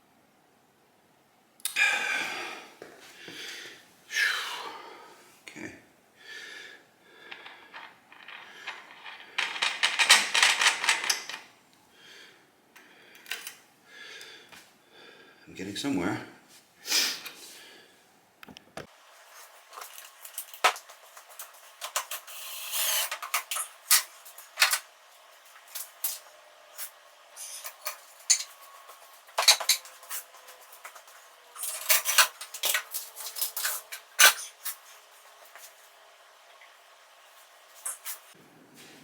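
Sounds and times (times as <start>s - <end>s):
metal tools clinking: 27.4s - 30.2s.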